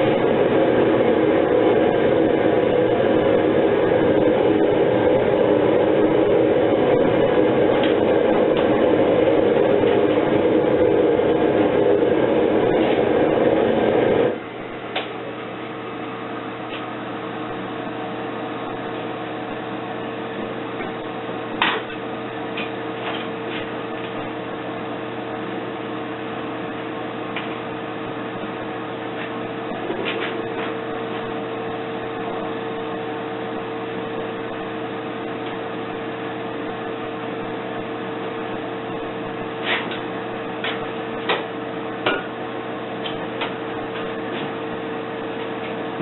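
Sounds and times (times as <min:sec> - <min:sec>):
machine hum: 0:00.0 - 0:46.0.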